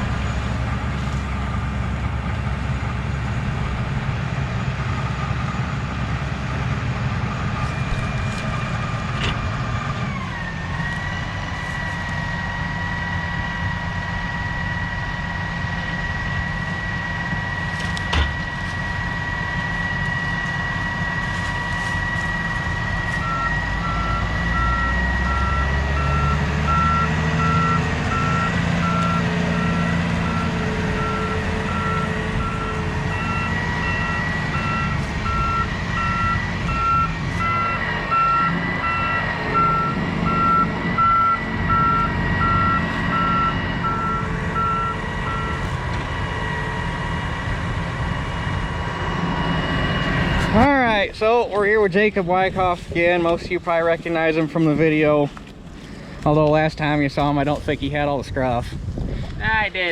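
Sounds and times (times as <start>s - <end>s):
high machine whine: 0.0s - 58.6s
harvest machinery engine rumble: 0.0s - 59.9s
reverse-warning beeper: 19.0s - 45.7s.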